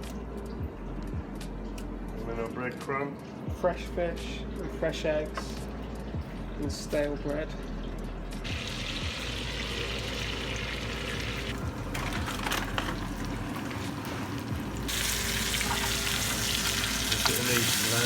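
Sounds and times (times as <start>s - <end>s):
fish sizzling in a pan: 8.5s - 11.6s, 12.3s - 18.0s.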